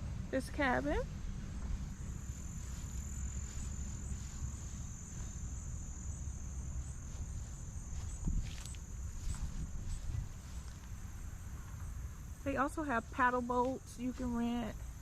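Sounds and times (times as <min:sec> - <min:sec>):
low rumble: 0:00.0 - 0:12.5
insects trilling: 0:00.4 - 0:15.0.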